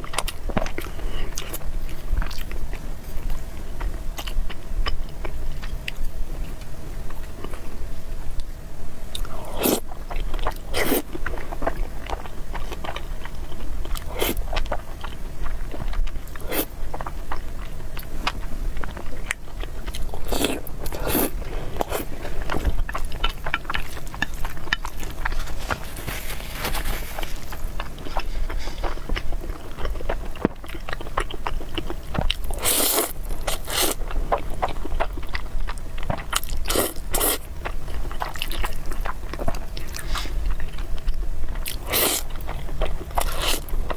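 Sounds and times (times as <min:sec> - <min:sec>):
steady low hum: 0:00.0 - 0:43.9
chewing and biting: 0:09.2 - 0:43.9
slurping: 0:20.1 - 0:23.0, 0:23.7 - 0:29.2, 0:32.5 - 0:34.0.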